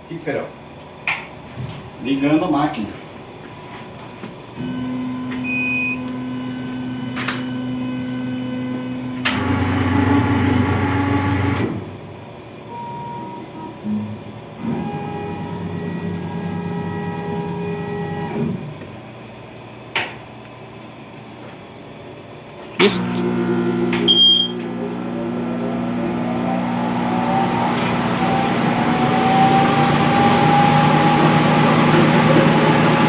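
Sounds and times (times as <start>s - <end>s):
laser cutter motors whining: 22.8s - 33.0s.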